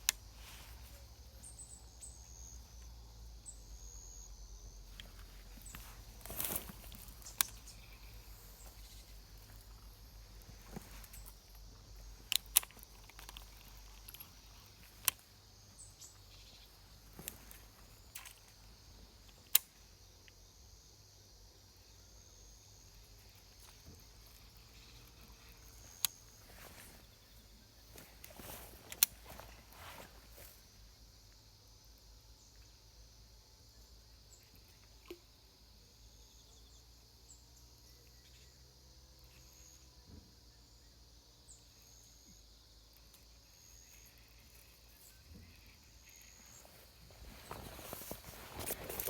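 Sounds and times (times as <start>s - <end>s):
high insect hum: 0.0s - 49.0s
sharp clicks: 12.2s - 15.2s.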